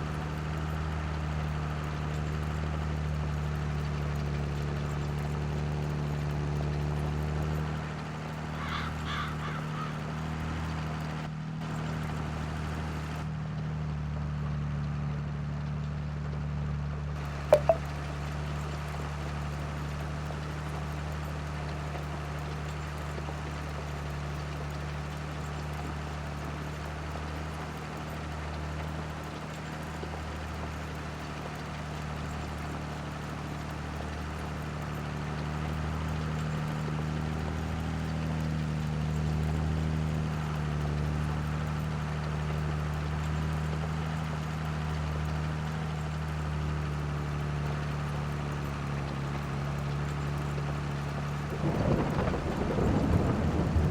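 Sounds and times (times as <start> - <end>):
tractor engine running: 27.0 - 53.9.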